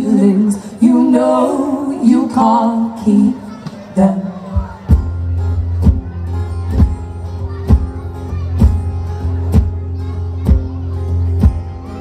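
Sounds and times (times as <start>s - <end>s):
steady drum beat: 4.8s - 12.0s.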